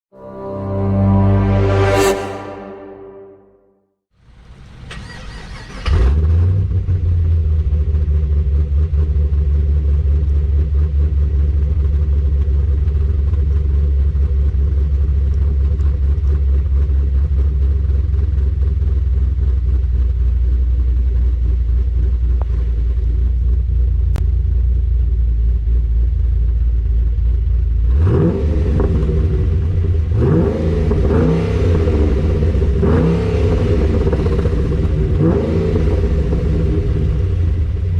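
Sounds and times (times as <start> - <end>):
engine revving: 27.9 - 37.9.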